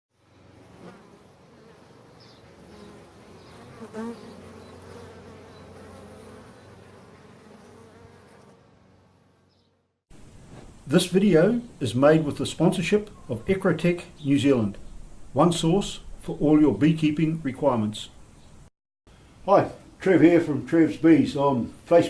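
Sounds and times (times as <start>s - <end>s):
bee flying close: 0.2s - 9.9s
bees buzzing: 0.2s - 10.0s.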